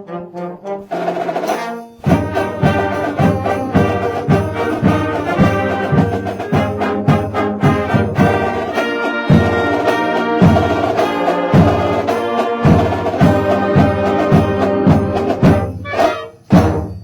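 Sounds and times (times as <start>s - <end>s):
brass instruments melody: 0.0s - 17.0s.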